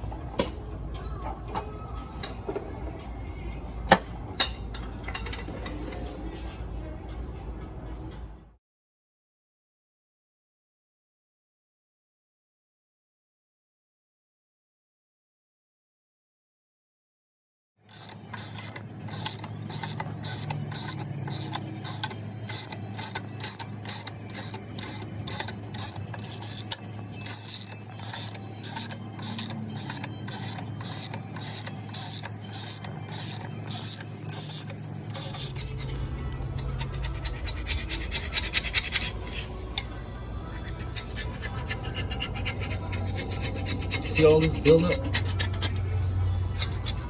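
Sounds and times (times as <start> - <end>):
ratchet wrench clicking: 17.9 - 39.9.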